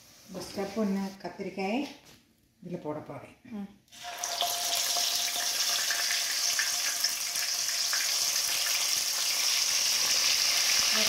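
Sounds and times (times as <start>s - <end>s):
eggplants sizzling in hot oil: 3.9s - 11.0s.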